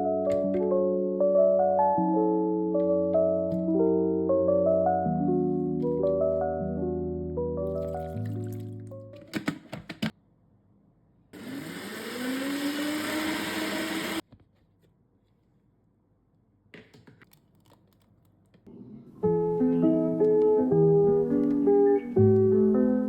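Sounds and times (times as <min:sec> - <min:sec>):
blender motor whining: 0:11.4 - 0:14.2.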